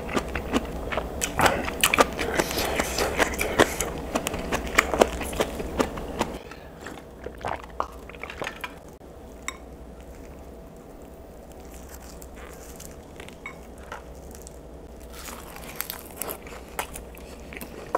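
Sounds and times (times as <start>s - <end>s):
wet chewing and smacking: 0.0s - 9.0s, 9.9s - 17.9s.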